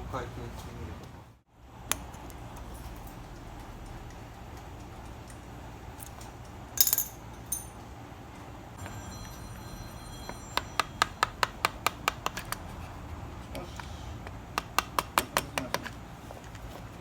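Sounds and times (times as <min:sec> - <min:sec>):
metallic clink: 0:06.8 - 0:07.9, 0:08.8 - 0:11.4
faint ringing tone: 0:08.7 - 0:11.4.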